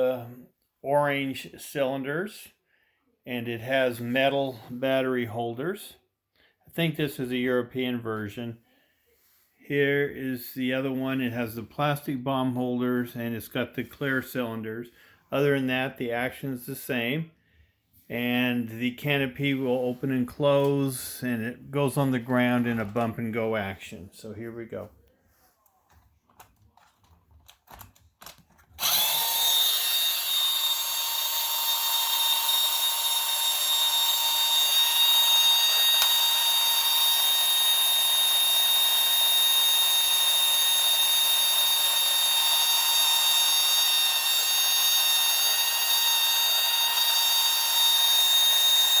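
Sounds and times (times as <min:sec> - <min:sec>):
toy motor and gears whirring: 0:28.8 - 0:49.0.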